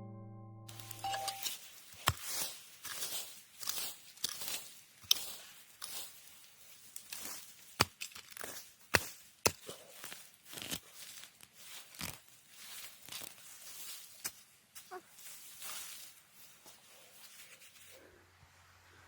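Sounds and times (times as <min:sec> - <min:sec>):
garden tool scraping soil: 0:00.7 - 0:18.0
garden tool chopping strikes: 0:01.2 - 0:05.4, 0:07.8 - 0:09.8.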